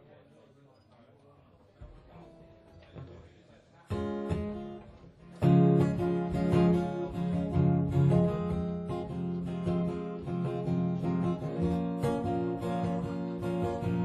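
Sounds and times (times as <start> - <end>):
acoustic guitar strummed fast: 5.4 - 14.0.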